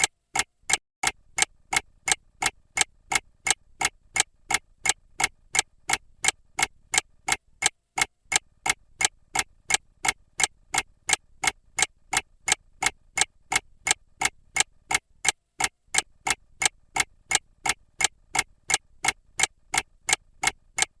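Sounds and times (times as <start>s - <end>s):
mechanical clock ticking: 0.0s - 21.0s.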